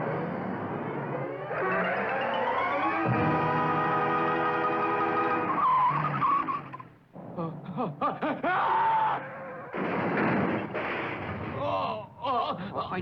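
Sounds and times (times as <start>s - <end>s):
cartoon tyres screeching: 1.4s - 7.0s
sustained music chord: 1.6s - 5.3s.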